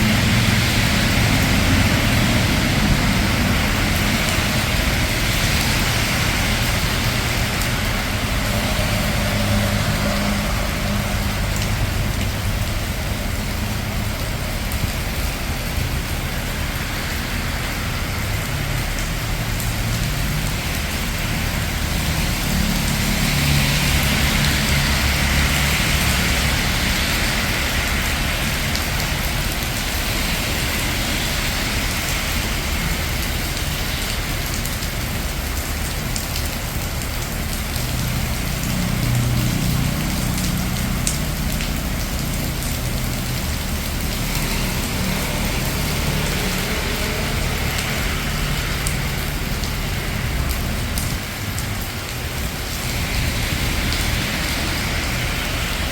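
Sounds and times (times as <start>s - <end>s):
vehicle passing with tyre hiss: 0.0s - 36.6s, 37.4s - 55.9s
steady rain falling: 0.0s - 55.9s
traffic on wet road: 0.0s - 55.9s.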